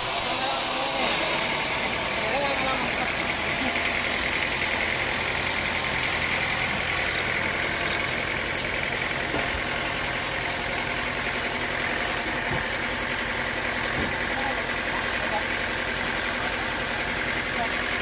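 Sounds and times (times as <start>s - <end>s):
high mechanical whine: 0.0s - 15.4s
sawmill machinery humming: 0.0s - 18.0s.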